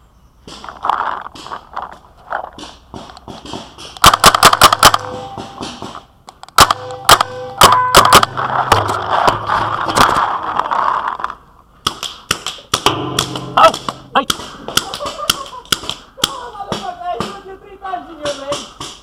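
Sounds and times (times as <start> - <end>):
paintball marker firing: 2.5 - 9.4, 11.8 - 17.4.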